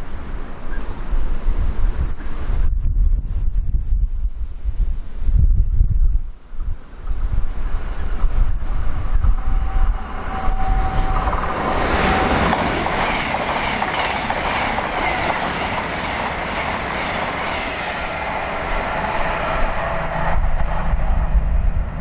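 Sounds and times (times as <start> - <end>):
wind buffeting microphone: 0.0 - 22.0
train passing at speed: 6.5 - 22.0
steady whining tones: 8.0 - 22.0.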